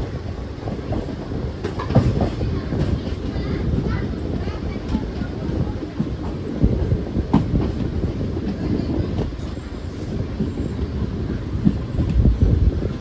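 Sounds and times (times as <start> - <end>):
train wheels rumbling on rails: 0.0 - 13.0
clickety-clack knocks: 0.2 - 9.6.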